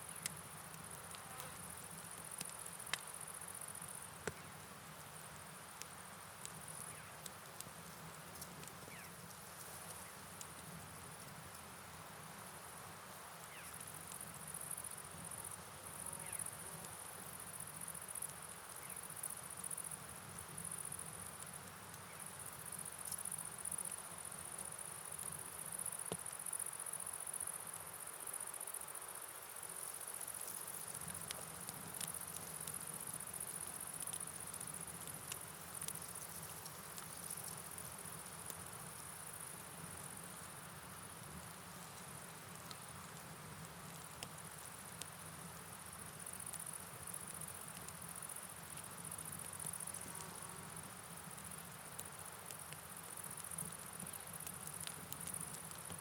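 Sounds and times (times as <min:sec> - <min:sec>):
rainfall hiss: 0:00.0 - 0:56.0
insect trill: 0:08.8 - 0:10.2, 0:13.4 - 0:41.3.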